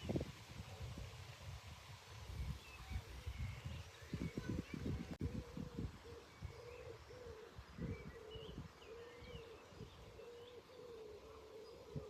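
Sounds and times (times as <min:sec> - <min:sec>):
low cooing bird calls: 0:02.4 - 0:12.0.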